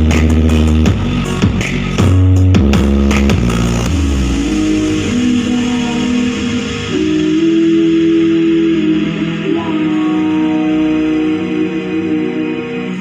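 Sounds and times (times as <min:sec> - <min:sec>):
steady bass: 0:00.0 - 0:13.0.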